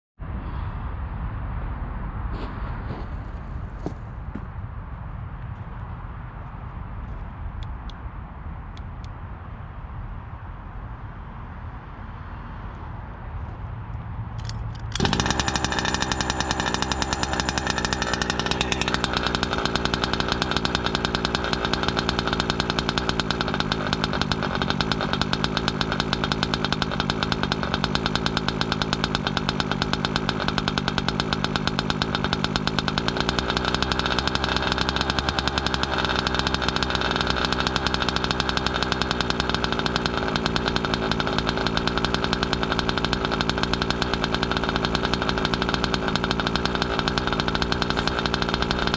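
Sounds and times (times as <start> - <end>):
model engine running: 2.3 - 4.5, 14.9 - 48.9.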